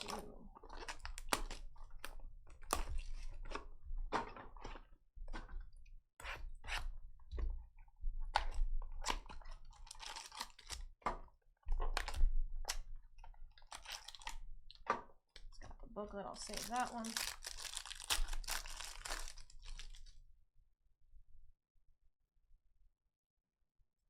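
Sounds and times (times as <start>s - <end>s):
plastic wrap crinkling and tearing: 0.0s - 3.6s, 8.4s - 10.9s, 13.5s - 14.5s, 16.3s - 20.2s
card packs ripping: 9.7s - 10.8s, 13.7s - 14.4s, 16.4s - 20.1s.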